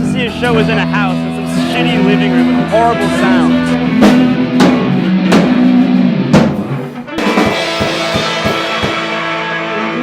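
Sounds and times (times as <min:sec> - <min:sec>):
drum and cymbal hits: 0:00.0 - 0:09.5
live band playing: 0:00.0 - 0:10.0.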